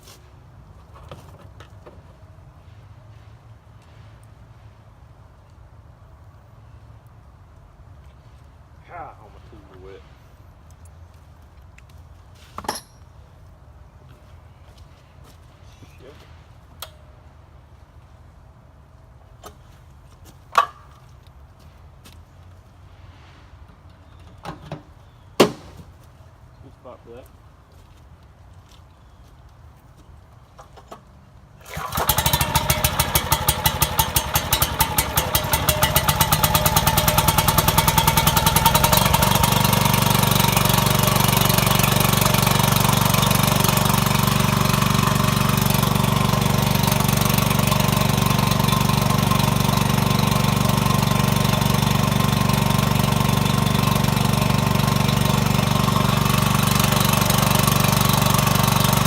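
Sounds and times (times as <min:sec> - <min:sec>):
wood splitter engine running: 0:31.6 - 0:59.0.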